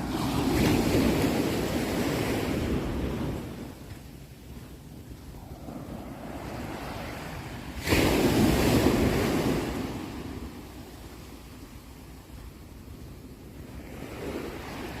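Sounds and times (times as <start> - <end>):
ocean surf rumble: 0.0 - 15.0
wave breaking: 5.4 - 10.1.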